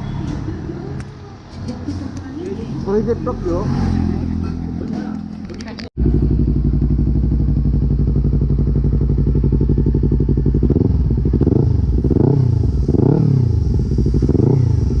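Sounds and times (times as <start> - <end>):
engine revving: 2.6 - 15.0
motorcycle engine idling: 4.6 - 15.0.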